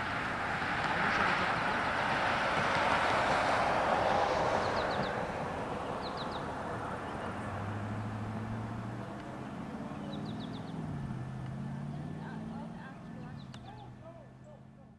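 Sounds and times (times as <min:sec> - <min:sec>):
passing vehicle rushing: 0:00.0 - 0:14.9
bird chirping: 0:04.6 - 0:14.9.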